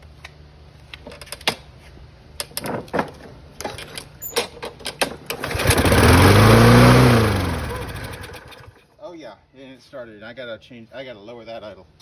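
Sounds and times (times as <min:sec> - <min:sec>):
push mower clicks and knocks: 0:02.4 - 0:08.7
mower engine starting: 0:03.6 - 0:08.8.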